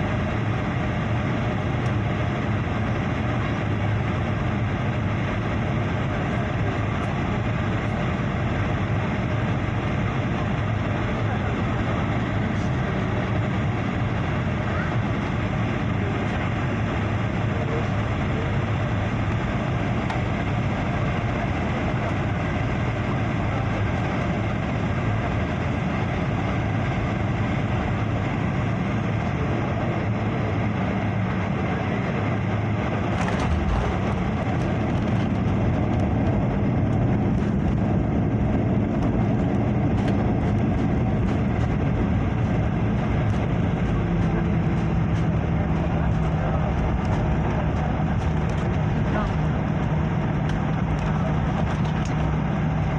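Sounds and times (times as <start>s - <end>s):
airliner cabin engine noise: 0.0s - 52.9s.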